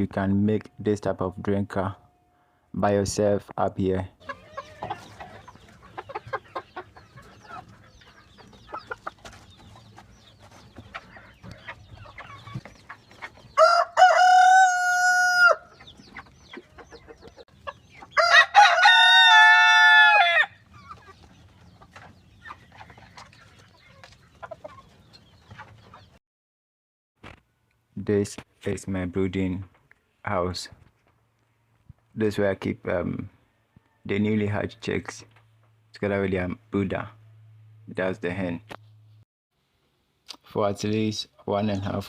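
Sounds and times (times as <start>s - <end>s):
chickens clucking: 3.8s - 26.2s
rooster crowing: 13.6s - 15.7s, 18.2s - 20.6s.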